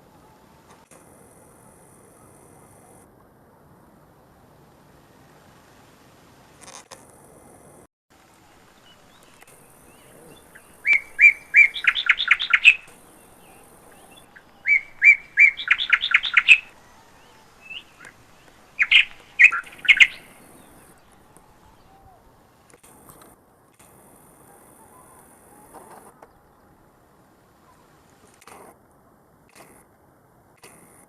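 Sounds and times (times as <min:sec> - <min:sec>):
songbird singing: 0:08.2 - 0:23.2, 0:24.4 - 0:28.4.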